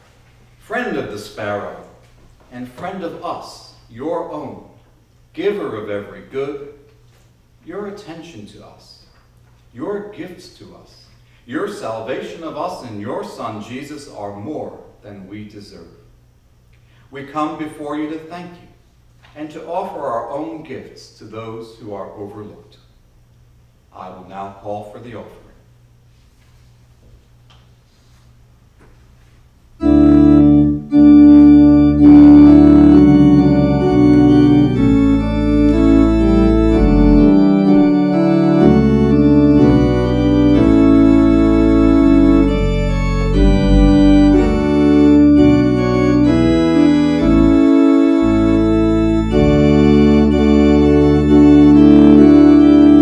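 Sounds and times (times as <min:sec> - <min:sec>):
organ playing slow chords: 0:29.8 - 0:53.0.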